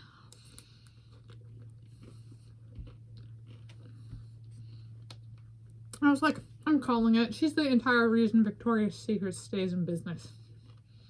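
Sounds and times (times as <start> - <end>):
steady low hum: 0.0 - 11.0
person chewing ice cream: 0.1 - 5.9, 10.3 - 11.0.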